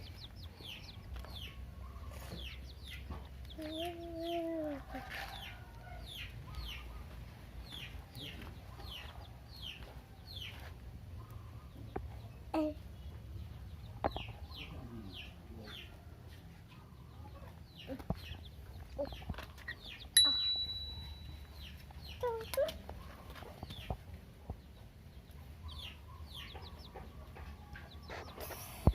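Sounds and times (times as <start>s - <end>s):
chicks peeping: 0.0s - 28.9s
sharp click with ringing tone: 20.2s - 21.6s.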